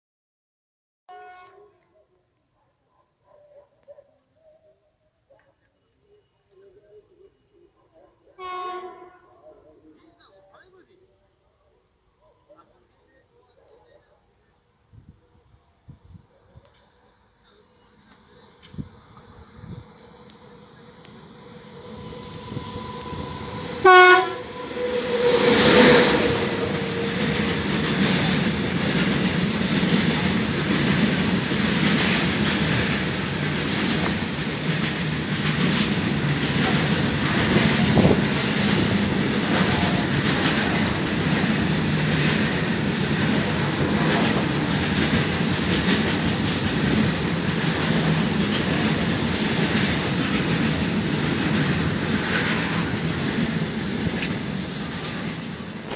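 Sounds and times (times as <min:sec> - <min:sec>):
locomotive horn blast: 0:01.1 - 0:01.6, 0:08.4 - 0:09.4, 0:22.1 - 0:27.6
freight train wheel rumble: 0:16.8 - 0:55.9
wheels clacking over rail joints: 0:25.4 - 0:52.9.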